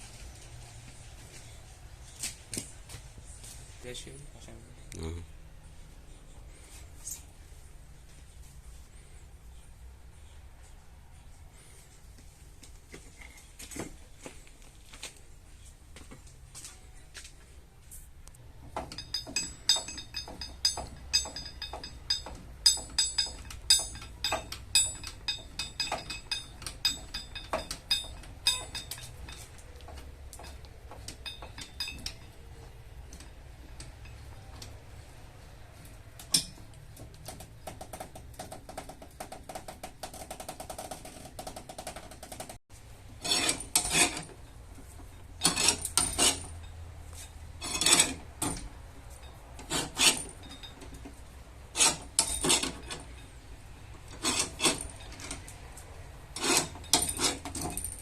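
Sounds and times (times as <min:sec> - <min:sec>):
rasping strokes on metal panel: 0:43.2 - 0:44.4, 0:49.6 - 0:50.6, 0:51.7 - 0:53.0, 0:54.1 - 0:55.0, 0:56.3 - 0:57.9.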